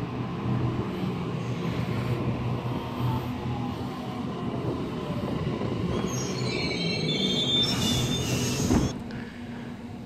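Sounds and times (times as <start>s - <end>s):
electric train rumbling on rails: 0.0s - 10.0s
high metallic squeal: 5.9s - 8.9s.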